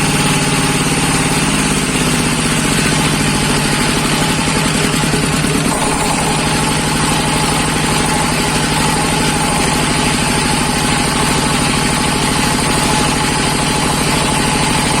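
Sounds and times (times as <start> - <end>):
shredder diesel engine running: 0.0 - 15.0.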